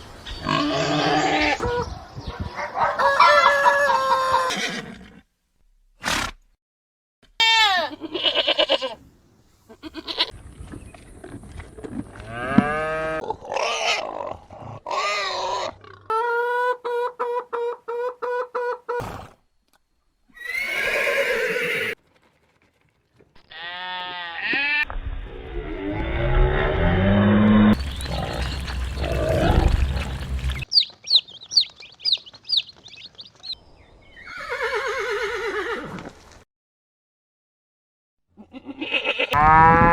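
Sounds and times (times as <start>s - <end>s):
farm animal calls: 27.7s - 33.6s.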